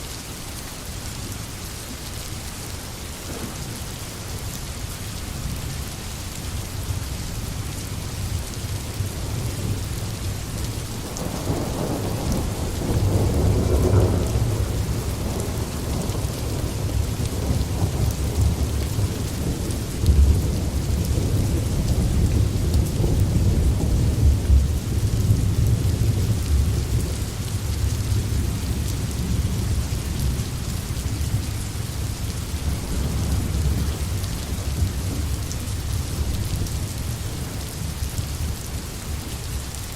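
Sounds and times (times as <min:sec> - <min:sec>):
rain falling on forest: 0:00.0 - 0:39.9
low rumble of thunder: 0:03.2 - 0:04.4, 0:08.1 - 0:38.7.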